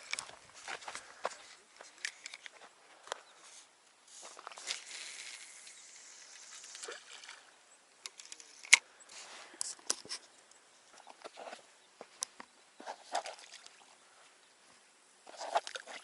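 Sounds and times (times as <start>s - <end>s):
small clicks and rustles: 0.0s - 7.4s, 8.0s - 13.7s
soft hiss: 0.0s - 16.0s.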